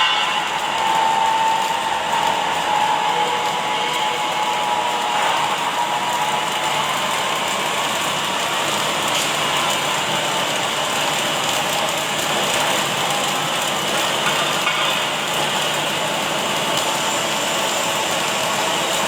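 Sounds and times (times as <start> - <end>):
arc welding crackling hiss: 0.0 - 19.0.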